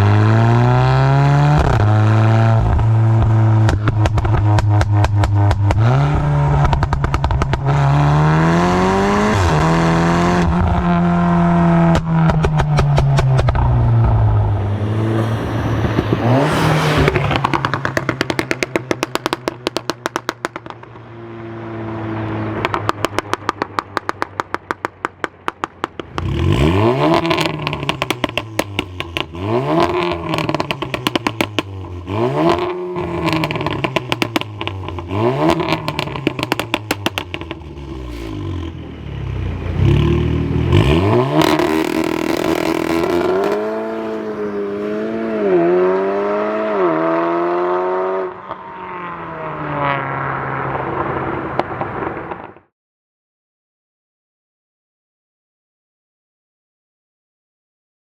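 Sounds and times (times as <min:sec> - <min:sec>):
car engine accelerating: 0:00.0 - 0:52.4
exhaust pops: 0:02.5 - 0:21.1, 0:22.5 - 0:38.8, 0:39.8 - 0:44.3, 0:50.7 - 0:52.7.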